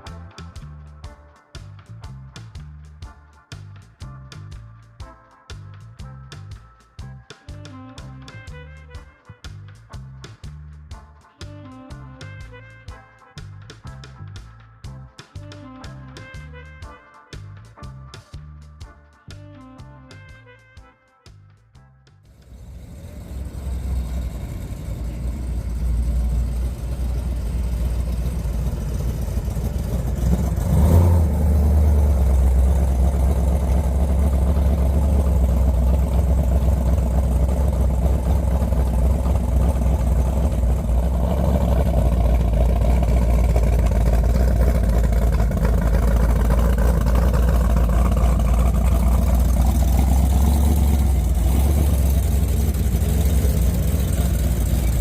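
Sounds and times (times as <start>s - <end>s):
car engine running: 22.3s - 55.0s.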